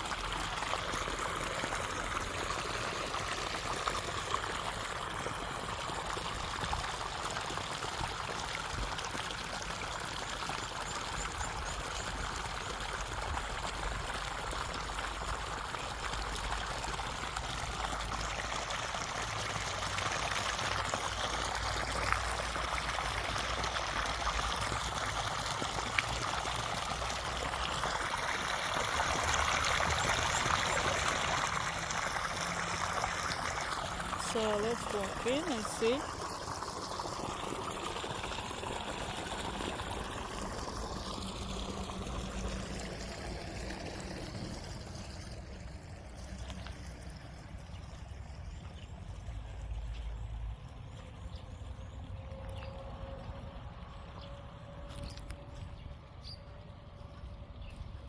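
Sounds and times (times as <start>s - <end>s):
stream of water rushing: 0.0s - 47.6s.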